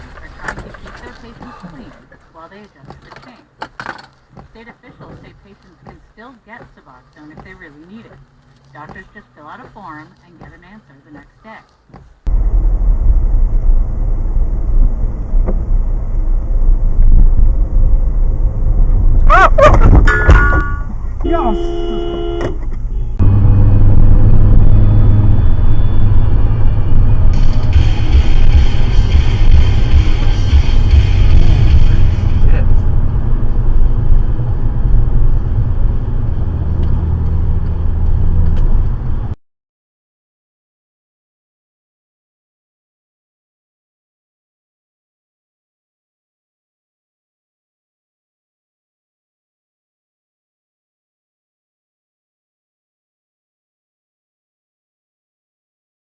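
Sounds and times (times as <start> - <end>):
road and engine rumble: 0.0 - 39.4.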